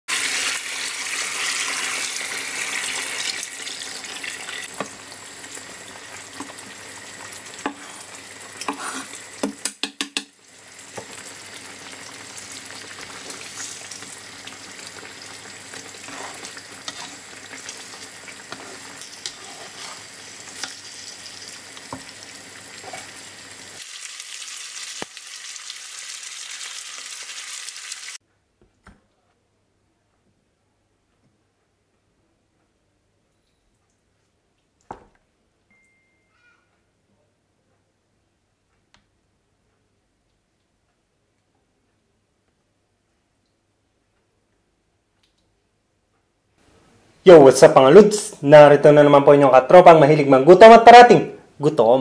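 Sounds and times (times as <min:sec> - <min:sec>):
food sizzling in frying pan: 0:00.1 - 0:28.2
spatula stirring: 0:06.0 - 0:10.2, 0:11.8 - 0:23.8.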